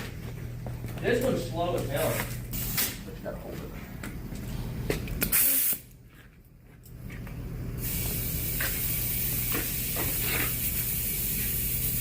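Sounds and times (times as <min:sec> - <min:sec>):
compressed air filling a tire: 0:05.2 - 0:05.8, 0:07.8 - 0:12.0
loud burst of air: 0:05.2 - 0:05.9, 0:07.8 - 0:12.0.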